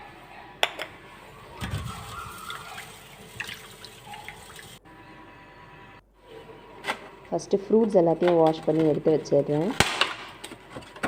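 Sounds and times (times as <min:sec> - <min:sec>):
water splashing in a sink: 0:01.6 - 0:04.8.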